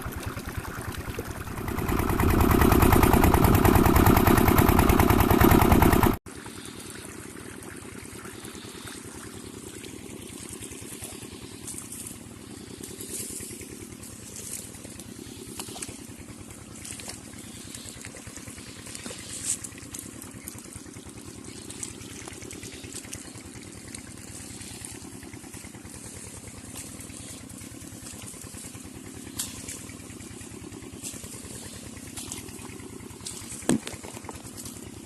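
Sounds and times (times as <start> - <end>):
water splashing: 0.0 - 6.1, 14.1 - 35.0
diesel engine running: 0.0 - 35.0.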